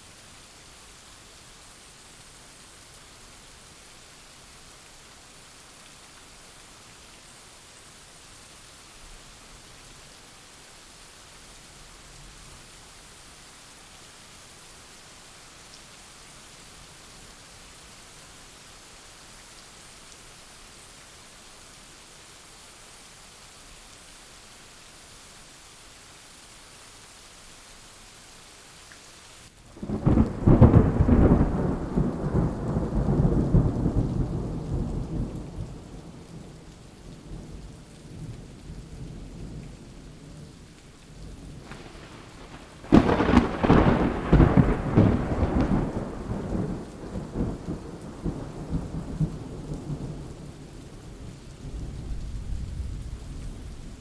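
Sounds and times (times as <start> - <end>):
steady rain: 0.0 - 54.0
thunder cracking and rumbling: 29.8 - 36.3, 41.5 - 50.2, 51.6 - 54.0.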